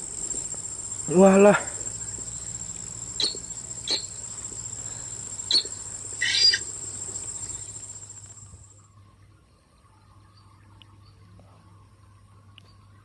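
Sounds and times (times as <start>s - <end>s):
insect high-pitched trill: 0.0s - 8.8s
short sharp chirps: 3.2s - 4.2s.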